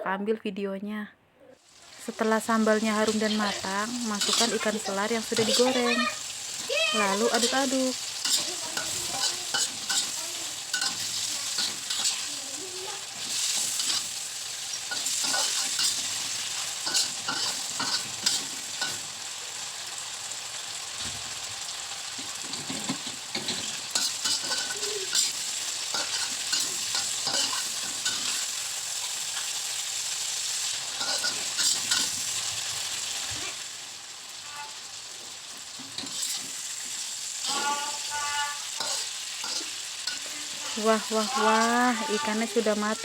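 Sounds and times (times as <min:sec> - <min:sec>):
hot oil sizzling: 0:01.6 - 0:43.0
utensil scraping a frying pan: 0:03.0 - 0:19.1, 0:22.1 - 0:29.6, 0:30.6 - 0:32.8, 0:35.7 - 0:42.4.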